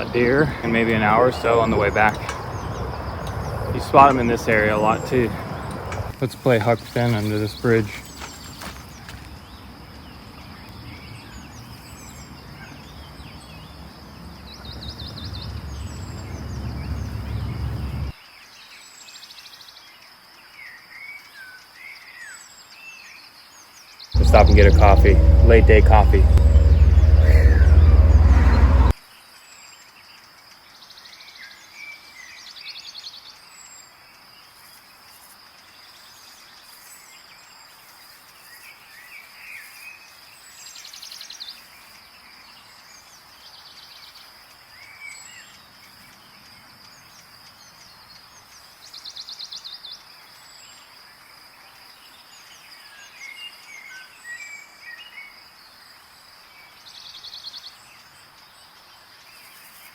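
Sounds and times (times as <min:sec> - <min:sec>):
high-pitched insect drone: 0:24.2 - 0:28.9
short buzzy trills: 0:24.2 - 0:28.9.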